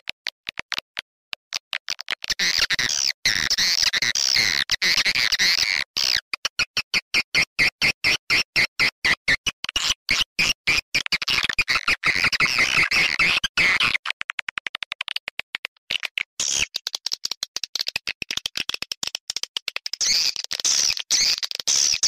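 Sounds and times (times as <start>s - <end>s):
high twittering bird chirps: 20.0s - 22.0s.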